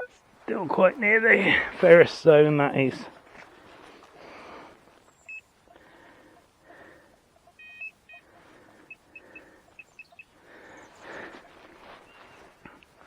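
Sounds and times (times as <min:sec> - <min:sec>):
metal detector beeping: 0:00.0 - 0:00.2, 0:05.2 - 0:05.5, 0:07.4 - 0:10.3
soft rustling: 0:02.8 - 0:06.4, 0:10.5 - 0:13.0.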